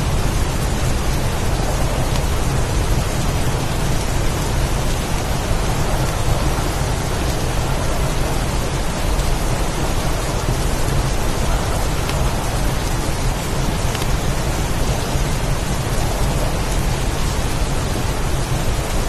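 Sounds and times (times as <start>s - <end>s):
heavy rain hissing: 0.0s - 19.0s
low wind rumble: 0.0s - 19.0s.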